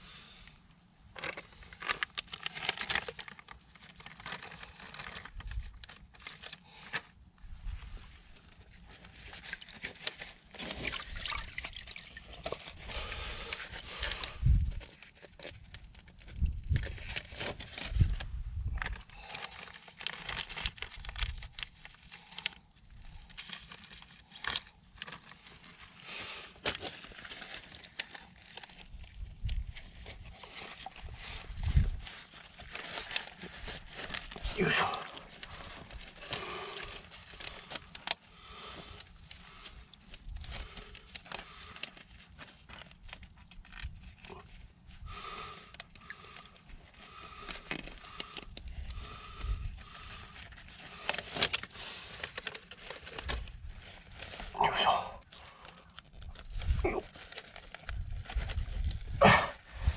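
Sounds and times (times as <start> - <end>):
water splashing and sloshing: 10.6 - 12.8.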